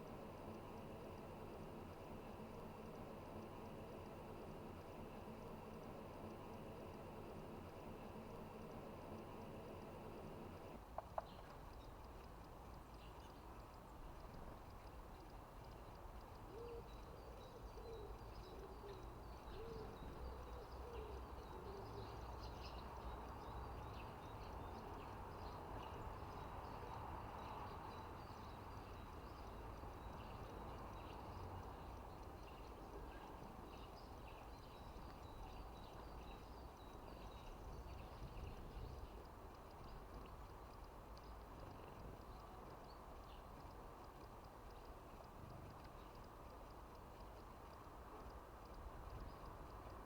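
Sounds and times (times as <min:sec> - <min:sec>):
low background rumble: 0:00.0 - 0:10.8
small birds chirping: 0:00.0 - 0:50.0
low hooting bird call: 0:16.5 - 0:22.3.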